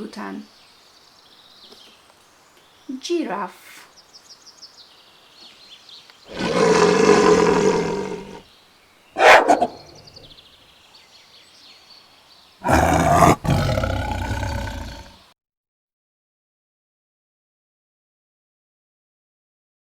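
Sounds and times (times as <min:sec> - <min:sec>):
big cat roaring: 0:06.3 - 0:08.4, 0:12.6 - 0:15.2
faint bird chirps: 0:07.5 - 0:15.1.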